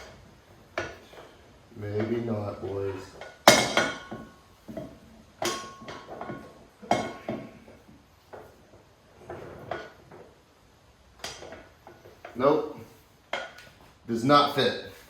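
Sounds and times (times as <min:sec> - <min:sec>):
sharp metal clanks: 0:03.2 - 0:07.5.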